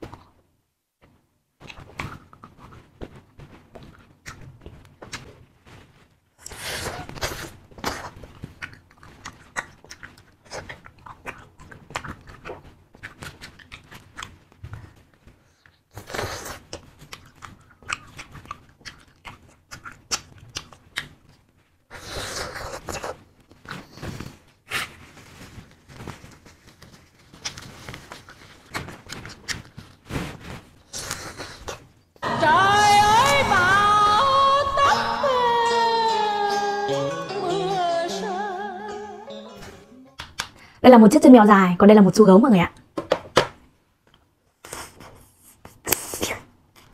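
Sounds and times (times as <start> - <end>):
chewing wax candy with clicks: 7.8 - 21.5.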